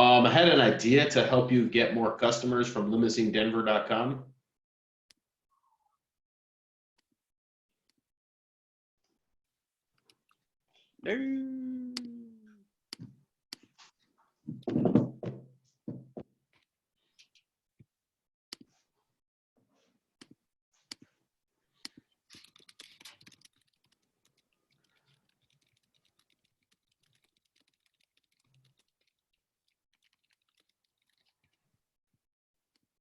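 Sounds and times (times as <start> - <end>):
keyboard and mouse clicks: 21.8 - 31.6.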